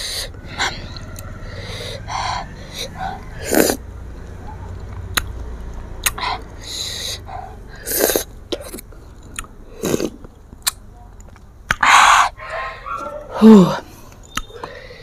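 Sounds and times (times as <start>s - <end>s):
biting and chewing mango: 4.7s - 6.7s, 7.8s - 12.1s.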